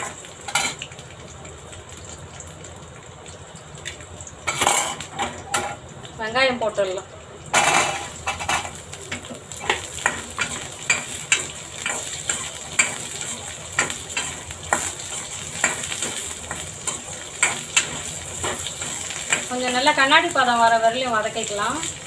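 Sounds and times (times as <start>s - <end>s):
onions sizzling in hot oil: 0.0s - 22.0s
spoon scraping and knocking pan: 7.6s - 19.9s.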